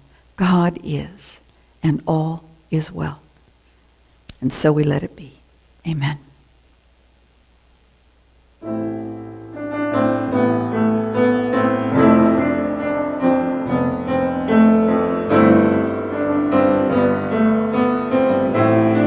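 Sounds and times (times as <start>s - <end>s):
piano music: 8.6s - 19.0s.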